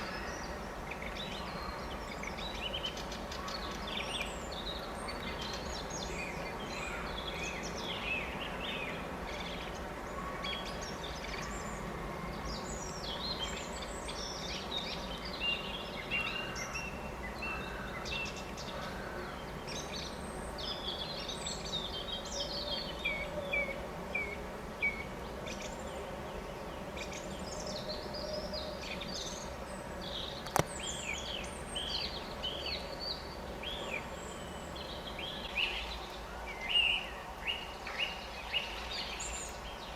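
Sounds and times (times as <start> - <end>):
low background hiss: 0.0 - 39.9
songbirds chirping and singing: 0.0 - 39.9
sharp click: 30.4 - 30.8.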